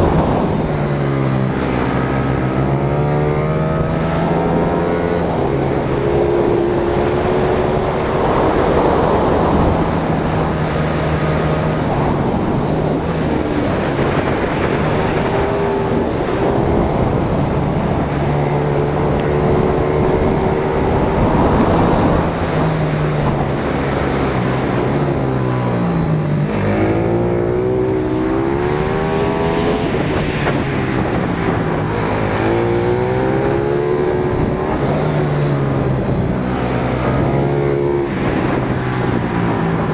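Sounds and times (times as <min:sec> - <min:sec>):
constant rushing noise: 0:00.0 - 0:39.9
motorcycle engine revving: 0:00.0 - 0:39.9.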